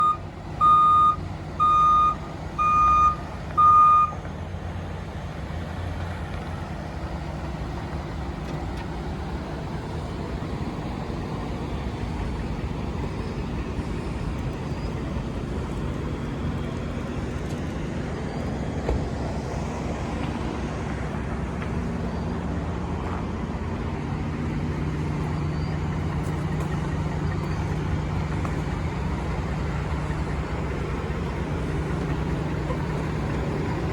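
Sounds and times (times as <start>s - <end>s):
short beeps: 0.0s - 4.2s
truck engine running: 0.0s - 33.9s.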